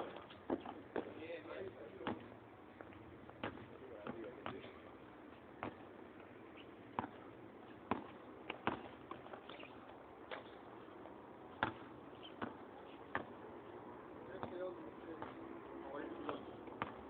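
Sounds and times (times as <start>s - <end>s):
basketball bouncing on court: 0.5s - 1.2s, 2.0s - 2.3s, 3.3s - 4.7s, 5.6s - 5.9s, 6.9s - 9.3s, 11.6s - 13.4s, 14.3s - 15.4s, 16.2s - 17.0s.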